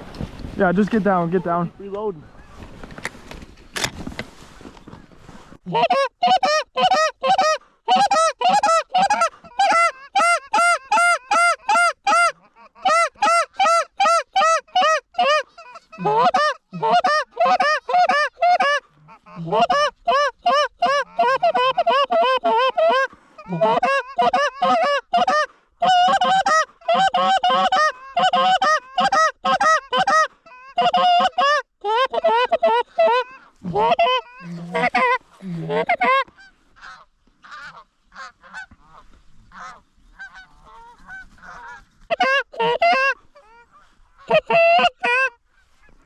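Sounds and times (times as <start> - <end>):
goose honking: 5.7 - 46.0.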